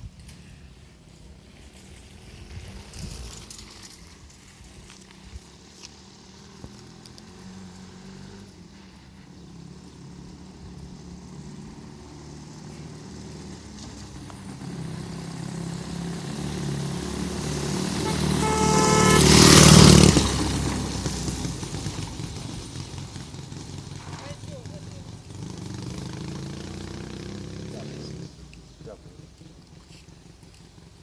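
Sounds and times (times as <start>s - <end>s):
motorcycle engine passing by: 0.0s - 31.0s.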